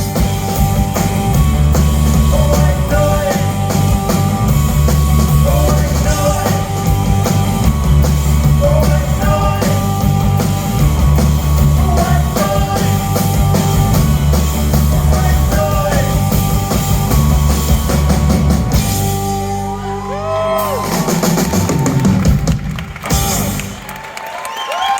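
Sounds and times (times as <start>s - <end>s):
live rock band playing: 0.0s - 24.2s
person singing: 2.1s - 3.9s, 5.2s - 7.1s, 8.4s - 10.2s, 11.6s - 13.4s, 14.7s - 16.4s.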